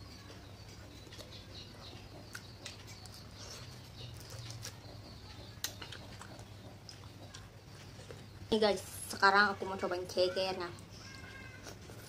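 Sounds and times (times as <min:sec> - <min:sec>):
person chewing food: 0:00.6 - 0:08.5, 0:10.8 - 0:12.0.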